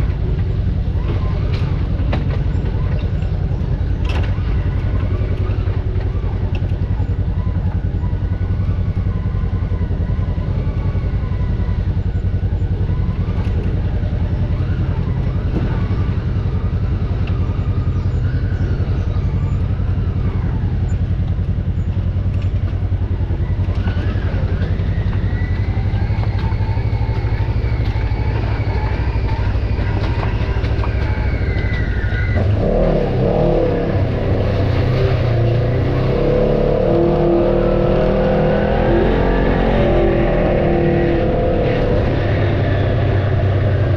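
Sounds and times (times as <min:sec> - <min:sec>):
vehicle engine idling: 0:00.0 - 0:43.9.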